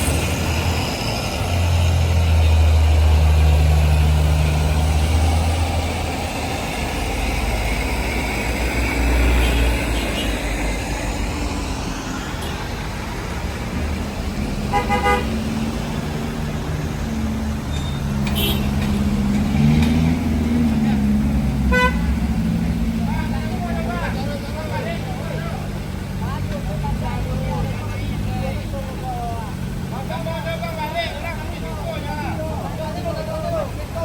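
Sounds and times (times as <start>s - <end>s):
vehicle engines droning in traffic: 0.0s - 34.0s
car horn toots: 9.4s - 10.4s, 14.7s - 15.4s, 18.2s - 18.8s, 21.7s - 22.1s.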